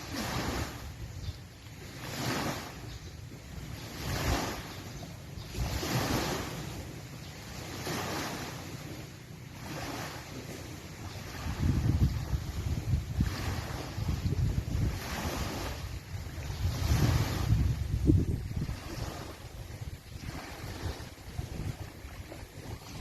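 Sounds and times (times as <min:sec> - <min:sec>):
wind rumbling on microphone: 0:00.0 - 0:09.0, 0:09.6 - 0:23.0
small waves washing onto shore: 0:00.0 - 0:23.0.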